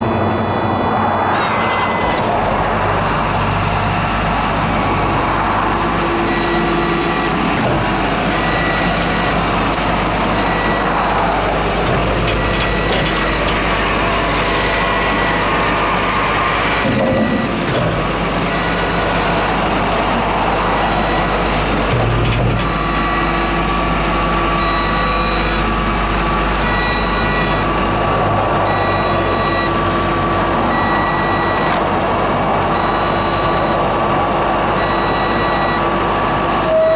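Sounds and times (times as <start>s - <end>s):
diesel engine running: 0.0s - 36.9s
travel alarm short beeps: 1.6s - 2.2s, 26.6s - 27.6s, 28.6s - 29.9s, 34.8s - 35.9s, 36.6s - 36.9s.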